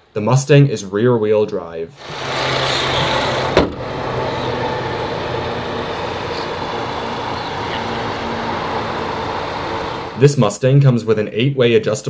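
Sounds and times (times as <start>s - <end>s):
car engine idling: 2.0s - 10.2s
car hood shutting thump: 3.4s - 4.0s.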